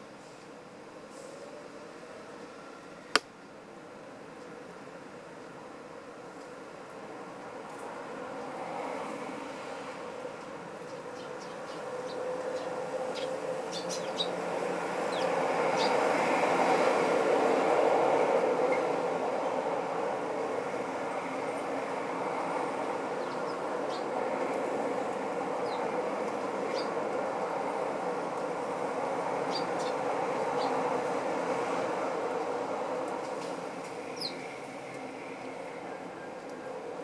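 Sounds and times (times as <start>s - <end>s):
sparrow chirps: 11.2s - 14.4s.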